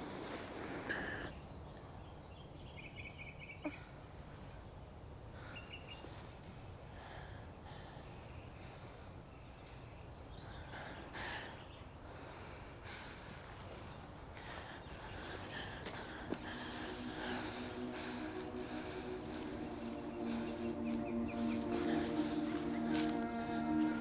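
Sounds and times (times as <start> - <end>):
bird chirps: 16.5 - 24.0.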